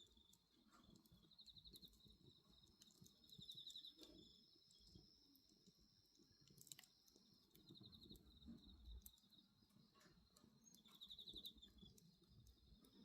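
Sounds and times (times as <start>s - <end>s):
wood bonfire crackling: 4.9s - 9.8s.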